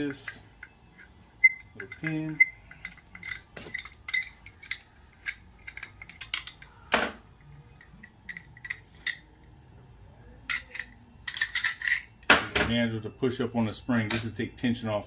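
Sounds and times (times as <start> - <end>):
steel parts clinking: 0.0 - 6.8, 7.4 - 9.3, 10.5 - 12.3.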